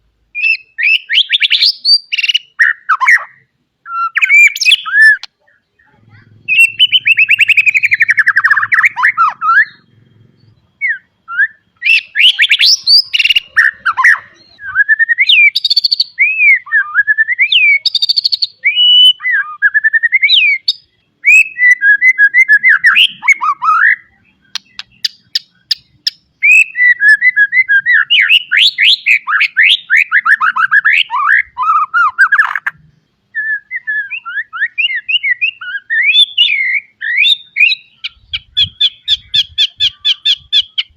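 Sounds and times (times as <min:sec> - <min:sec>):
bird singing whistled phrases: 0:00.4 - 0:09.9, 0:10.8 - 0:40.9
sharp bird ticks: 0:24.5 - 0:26.3.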